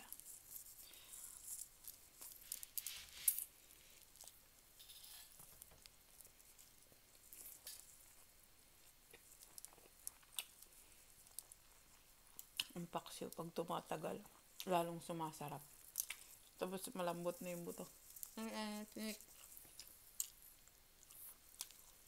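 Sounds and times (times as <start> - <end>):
chewing with lip smacks: 15.9 - 16.5.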